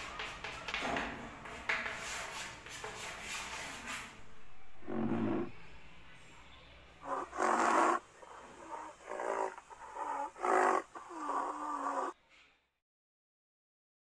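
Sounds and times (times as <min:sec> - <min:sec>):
wild animal calls: 0:04.8 - 0:05.6, 0:07.0 - 0:12.2.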